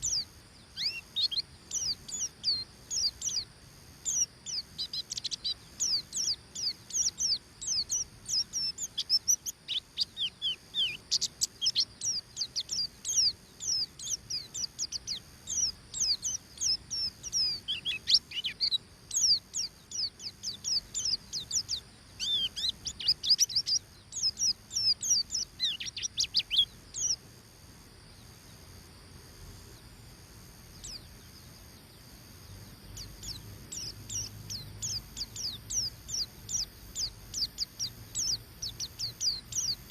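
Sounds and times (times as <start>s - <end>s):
bird singing rapid high notes: 32.8s - 39.9s.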